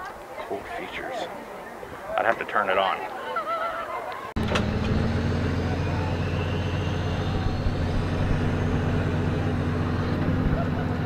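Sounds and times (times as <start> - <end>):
tow truck engine running: 4.4 - 11.0.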